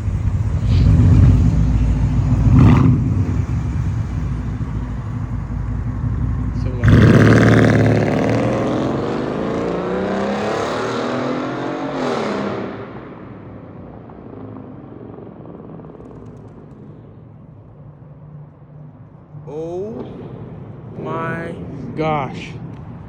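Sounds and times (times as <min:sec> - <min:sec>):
car engine revving: 0:00.0 - 0:13.5.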